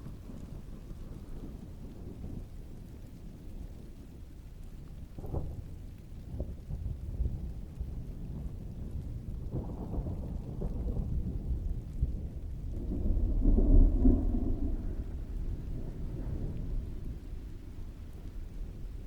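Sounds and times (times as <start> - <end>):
heavy rain: 0.0 - 19.0
thunder rolling: 6.4 - 19.0.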